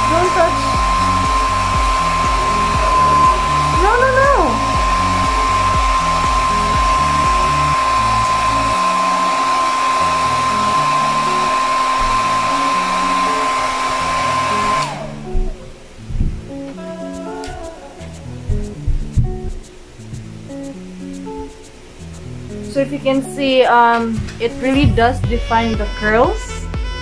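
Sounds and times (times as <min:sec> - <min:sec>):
hair dryer running: 0:00.0 - 0:15.6
hair dryer motor winding down: 0:00.0 - 0:15.8.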